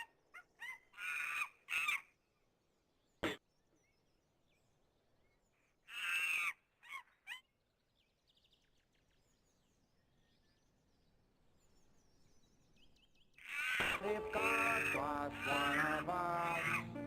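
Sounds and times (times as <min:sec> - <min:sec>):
bird calling: 0:13.4 - 0:17.0.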